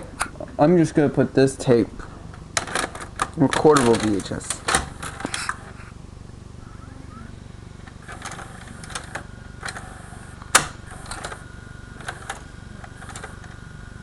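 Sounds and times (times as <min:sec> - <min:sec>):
faint mechanism whine: 0:00.0 - 0:14.0
tape loading mechanism clunks: 0:02.0 - 0:05.7, 0:07.8 - 0:13.7
low hum: 0:04.5 - 0:14.0.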